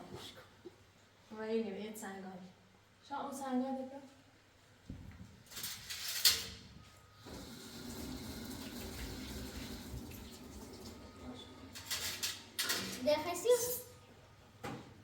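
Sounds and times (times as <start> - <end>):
tap water running into sink: 7.3 - 11.2.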